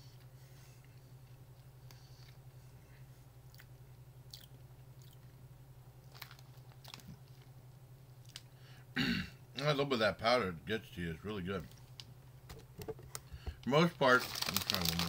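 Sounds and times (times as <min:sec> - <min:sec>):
steady low hum: 0:00.0 - 0:15.0
crunching and chewing: 0:03.4 - 0:05.4, 0:06.0 - 0:07.6, 0:08.2 - 0:08.5.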